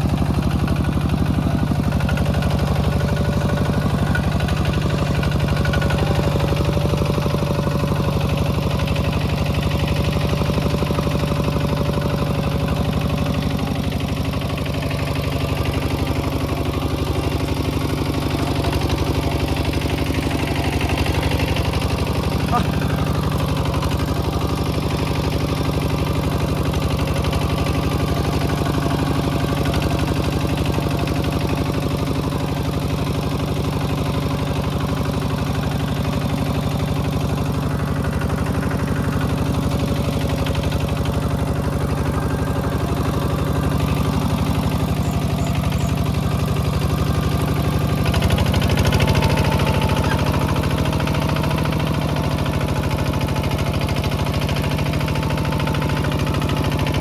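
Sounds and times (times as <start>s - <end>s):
small tractor engine running: 0.0s - 57.0s.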